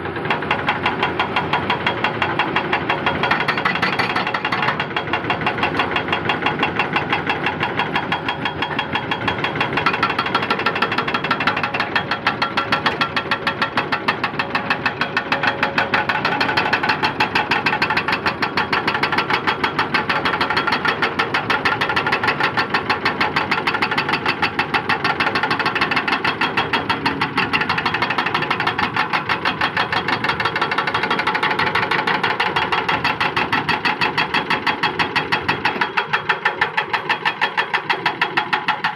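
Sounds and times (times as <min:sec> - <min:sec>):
diesel engine pulsing: 0:00.0 - 0:38.9.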